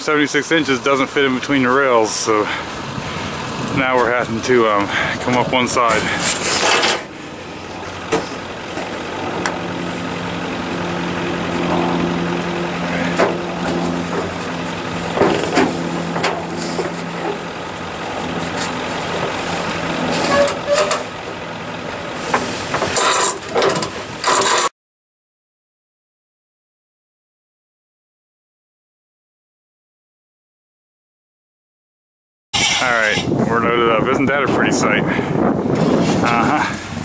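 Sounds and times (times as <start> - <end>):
motor humming: 6.0 - 24.4
metal clanks and knocks: 6.2 - 7.1, 8.0 - 9.6, 13.1 - 17.4, 20.0 - 21.1, 22.3 - 24.7.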